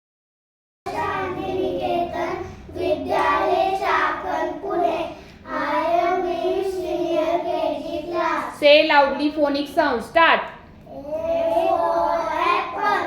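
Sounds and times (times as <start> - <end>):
children singing in unison: 0.9 - 8.6, 10.9 - 13.0.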